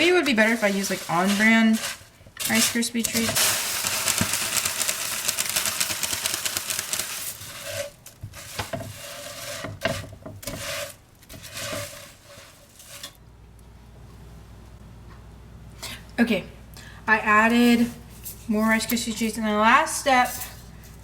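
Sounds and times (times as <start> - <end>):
spoon scraping a pot: 0.0 - 3.3, 7.4 - 13.2, 20.1 - 20.7
rice cereal crackling in a pot: 0.0 - 13.2.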